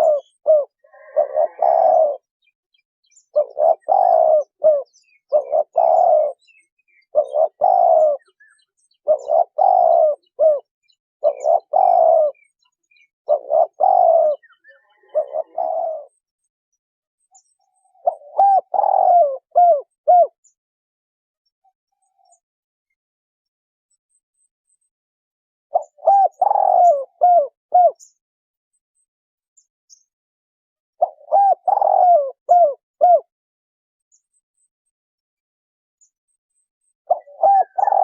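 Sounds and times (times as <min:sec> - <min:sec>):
dove cooing: 0:00.0 - 0:02.4, 0:03.2 - 0:16.2, 0:17.9 - 0:20.4, 0:25.7 - 0:28.1, 0:31.0 - 0:33.3, 0:37.1 - 0:38.0.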